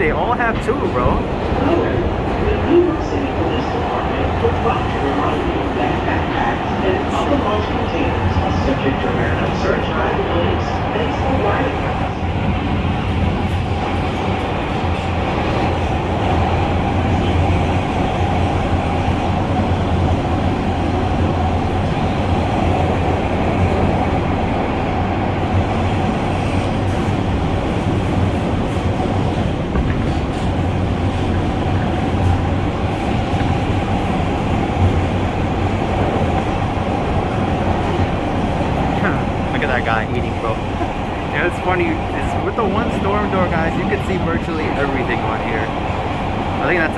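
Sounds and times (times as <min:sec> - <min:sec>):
subway car wheels rumbling: 0:00.0 - 0:46.9.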